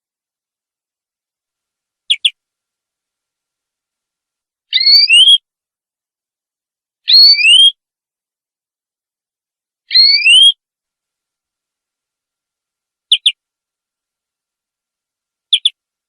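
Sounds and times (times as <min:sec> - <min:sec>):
canary chirps: 0:02.0 - 0:02.4, 0:04.7 - 0:05.4, 0:07.1 - 0:07.8, 0:09.9 - 0:10.6, 0:13.1 - 0:13.4, 0:15.4 - 0:15.8
canary whistled notes rising: 0:04.7 - 0:05.4, 0:07.1 - 0:07.8, 0:09.9 - 0:10.6.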